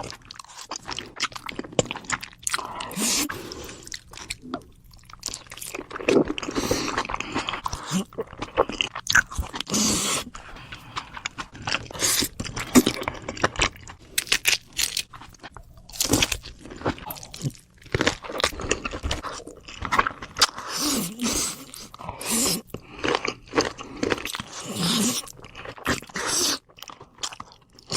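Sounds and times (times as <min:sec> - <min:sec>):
chewing crisp food: 0:00.0 - 0:27.9.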